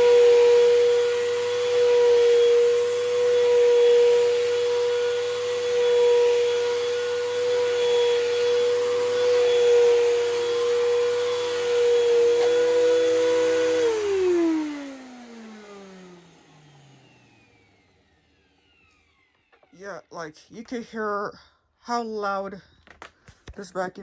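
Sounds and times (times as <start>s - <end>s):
vacuum motor winding down: 0.0s - 20.0s
vacuum cleaner running: 0.0s - 20.1s.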